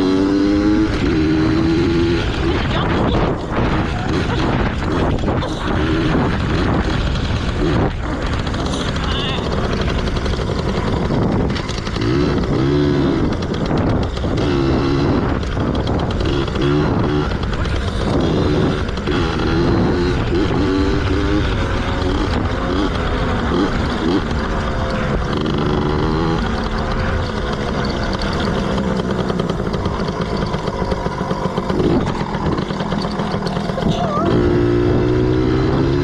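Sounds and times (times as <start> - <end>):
two-stroke motorcycle engine revving: 0.0 - 36.0.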